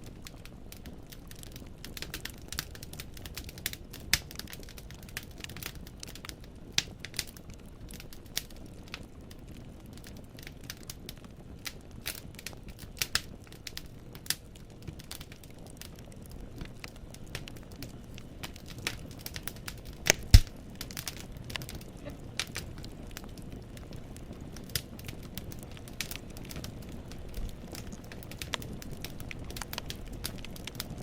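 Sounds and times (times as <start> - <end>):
logs crackling and popping: 0.0 - 31.0
low rumble of flames: 0.0 - 31.0.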